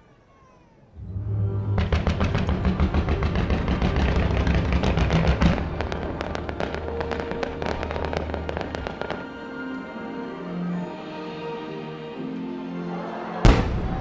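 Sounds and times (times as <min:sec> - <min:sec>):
fireworks bangs and crackles: 0:01.8 - 0:09.5, 0:13.4 - 0:14.0
show music: 0:13.4 - 0:14.0.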